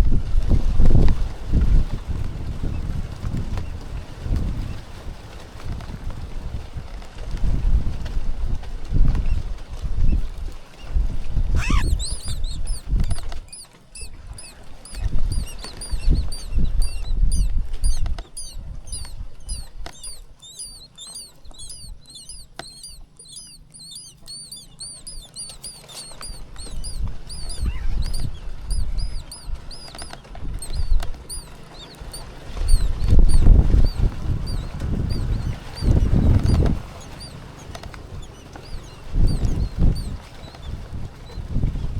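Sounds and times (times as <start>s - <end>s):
nestlings cheeping: 11.6s - 41.4s.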